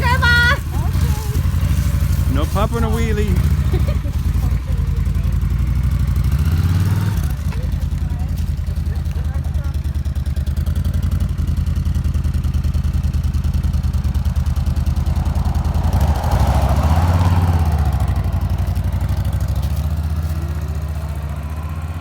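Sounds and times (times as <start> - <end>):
motorcycle engine: 0.0 - 22.0.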